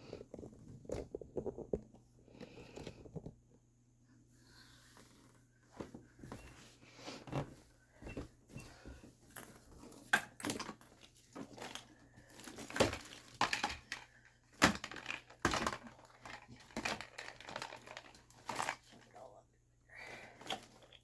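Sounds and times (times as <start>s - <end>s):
packaging crinkling and rustling: 9.4s - 19.1s.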